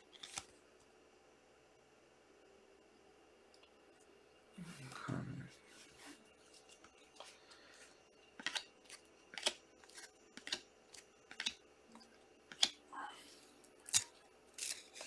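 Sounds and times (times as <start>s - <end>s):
crisp snips or rustles: 0.0s - 0.5s, 13.8s - 15.0s.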